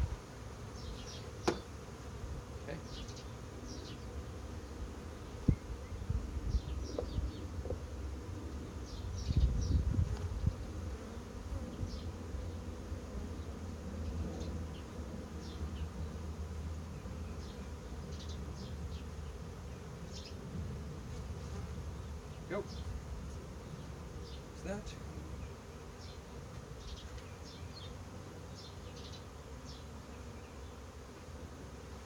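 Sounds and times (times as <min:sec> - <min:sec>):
honeybees buzzing: 0:00.0 - 0:32.0
hive frames knocking and bumping: 0:01.4 - 0:01.8.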